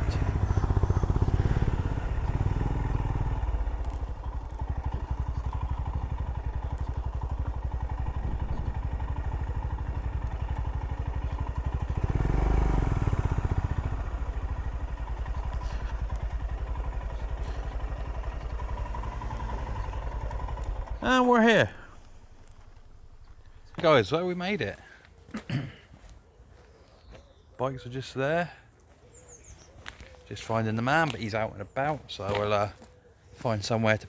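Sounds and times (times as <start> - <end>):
motorcycle engine running: 0.0 - 23.8.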